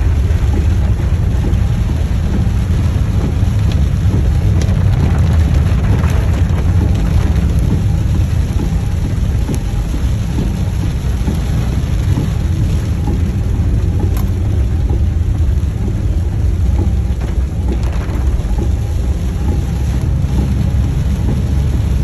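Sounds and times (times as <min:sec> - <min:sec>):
car and tyres rumbling on wet road: 0:00.0 - 0:22.0
heavy rain on a car: 0:00.0 - 0:22.0.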